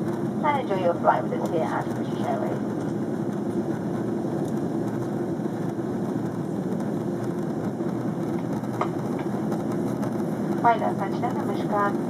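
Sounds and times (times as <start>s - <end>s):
jet engine and airflow rumble: 0.0s - 12.0s.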